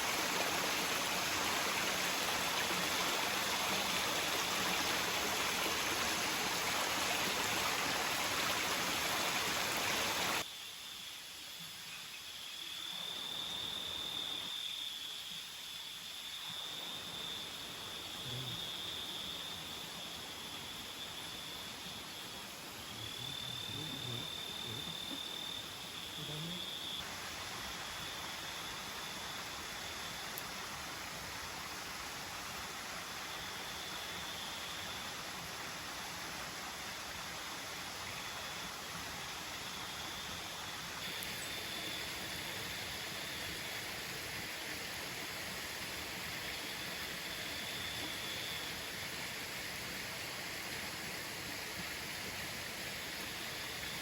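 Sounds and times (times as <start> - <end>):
waterfall rushing: 0.0 - 10.4
insects trilling: 0.0 - 54.0
faint low voices: 23.0 - 25.2, 26.2 - 26.7.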